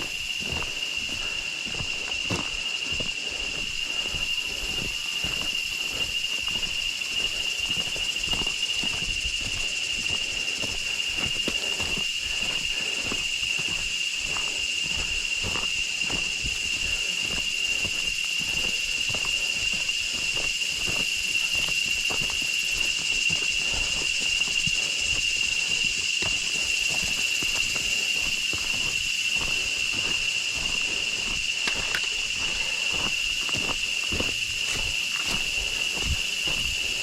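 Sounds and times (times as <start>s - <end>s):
high-pitched insect drone: 0.0s - 37.0s
soft footsteps: 0.0s - 37.0s.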